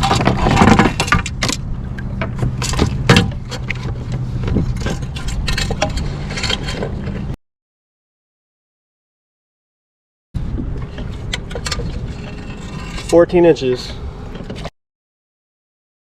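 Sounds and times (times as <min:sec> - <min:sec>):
gear clicking and clattering: 0:00.0 - 0:07.4
steady low hum: 0:00.0 - 0:07.4.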